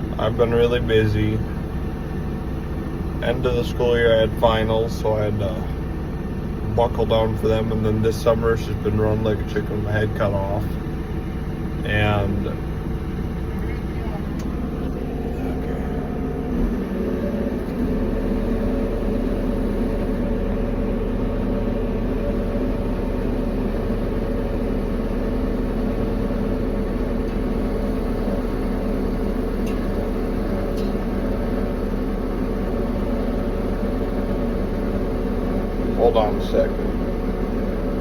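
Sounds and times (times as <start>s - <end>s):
vehicle engine humming: 0.0s - 38.0s.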